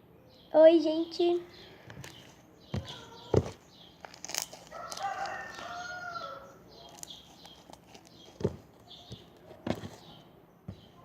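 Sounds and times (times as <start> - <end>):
rooster crowing: 4.6 - 6.6.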